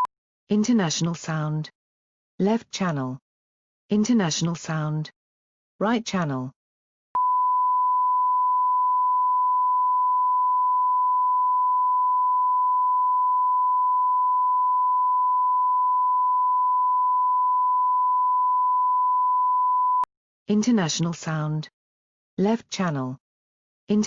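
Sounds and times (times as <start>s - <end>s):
sine-wave line-up tone: 7.2s - 20.1s.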